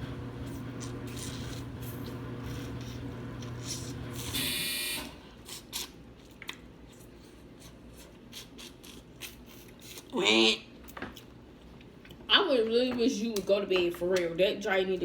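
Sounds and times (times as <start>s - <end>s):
electrical hum: 0.0s - 15.0s
harsh electronic buzzer beep: 4.4s - 5.1s.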